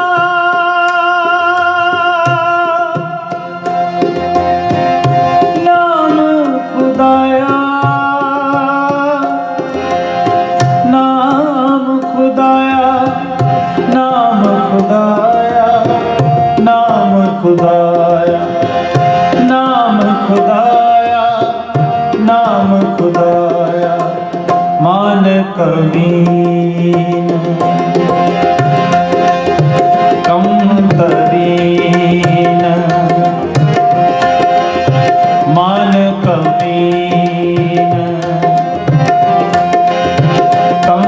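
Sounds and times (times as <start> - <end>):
harmonium: 0.0 - 41.0
tabla rhythm: 0.0 - 41.0.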